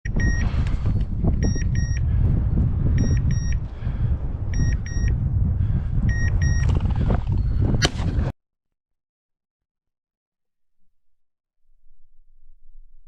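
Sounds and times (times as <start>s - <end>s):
wind rumbling on microphone: 0.0s - 8.3s.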